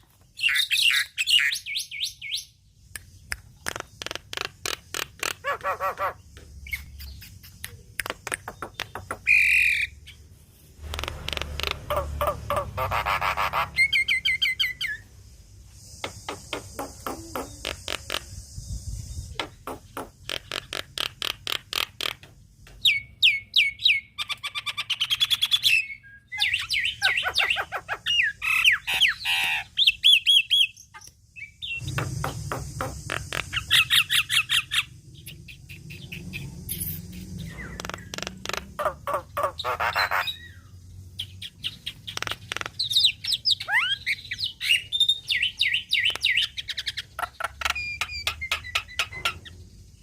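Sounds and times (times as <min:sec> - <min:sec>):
myna chattering: 0:16.3 - 0:18.4.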